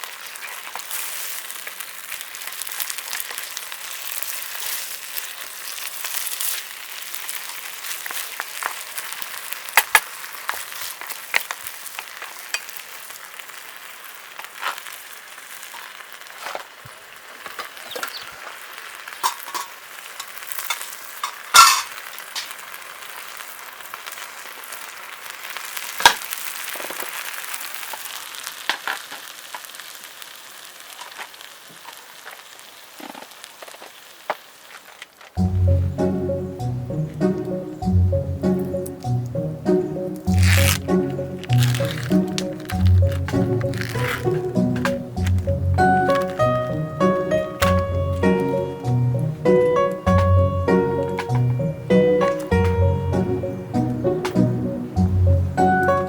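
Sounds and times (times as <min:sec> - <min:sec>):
food sizzling in a pan: 0:00.0 - 0:56.0
sharp clicks or knocks: 0:47.6 - 0:47.9.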